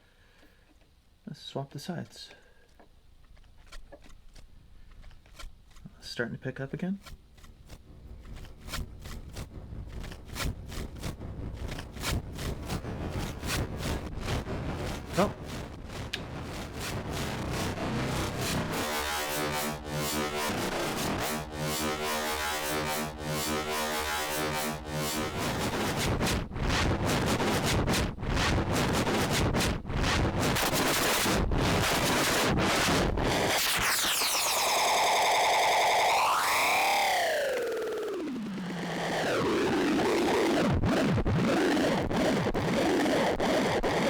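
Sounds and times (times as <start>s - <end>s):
harsh noisy feedback texture: 7.0s - 44.0s
held pitched tones: 7.6s - 27.8s
warbling pitched tone sweeping: 7.7s - 26.3s, 30.5s - 44.0s.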